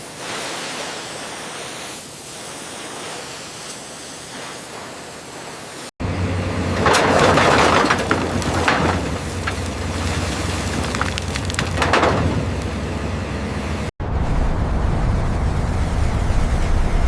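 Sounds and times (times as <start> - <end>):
steady hiss: 0.0 - 5.9.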